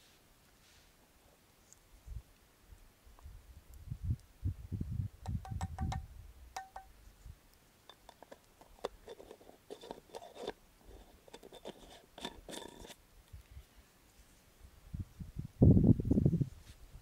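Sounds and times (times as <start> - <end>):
scraping and rubbing: 7.9 - 13.0.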